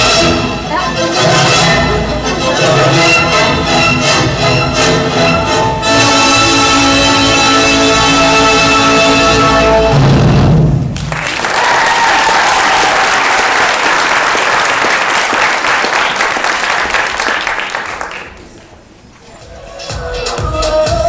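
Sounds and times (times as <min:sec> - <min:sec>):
music: 0:00.0 - 0:11.0, 0:19.4 - 0:21.0
audience clapping: 0:10.9 - 0:18.8.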